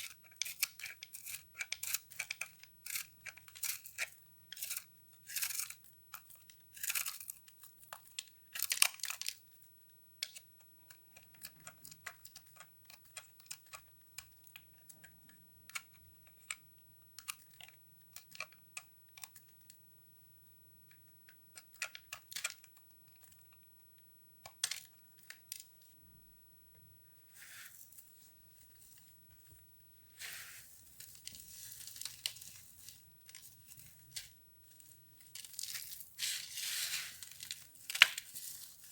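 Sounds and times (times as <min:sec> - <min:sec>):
brittle foam crackling and crunching: 0:30.2 - 0:38.9.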